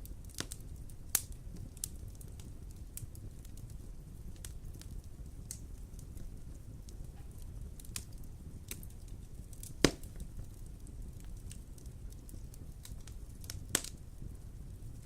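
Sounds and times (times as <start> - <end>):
wood fire crackling: 0.0 - 15.0
loud pop from fire: 9.6 - 10.5, 12.2 - 14.0.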